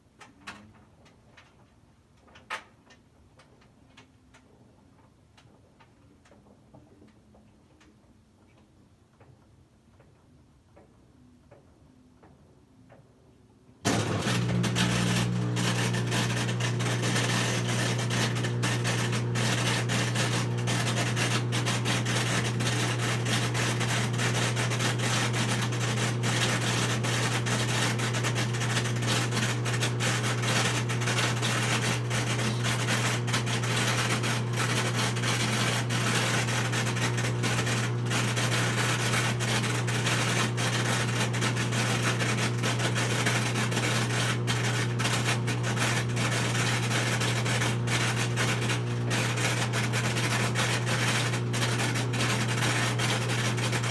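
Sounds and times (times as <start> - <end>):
washing machine humming: 13.9 - 53.9.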